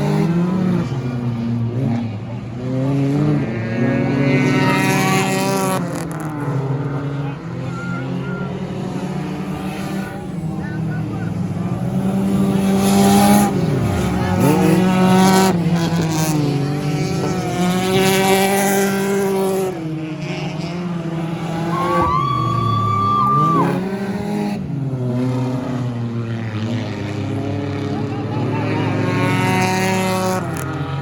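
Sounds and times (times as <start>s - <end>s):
race car engines passing: 0.0s - 31.0s.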